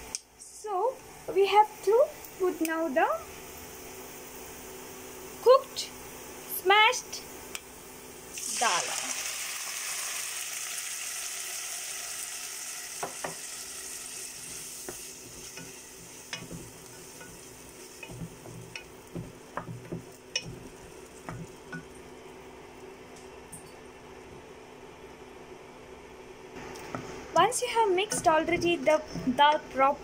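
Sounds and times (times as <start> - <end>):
food sizzling in hot oil: 1.1 - 22.9
spatula knocking and scraping a pot: 14.8 - 21.9, 28.0 - 29.4.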